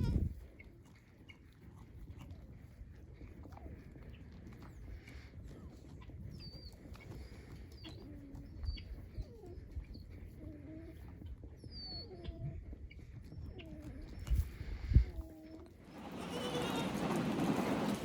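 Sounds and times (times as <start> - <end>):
goat bleating: 0.0 - 0.4, 15.9 - 17.7.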